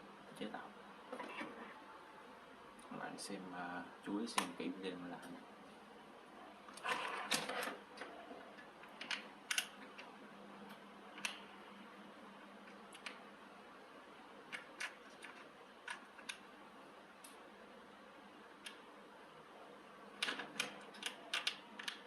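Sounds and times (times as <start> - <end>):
small parts clicking: 8.8 - 10.1, 20.2 - 22.0.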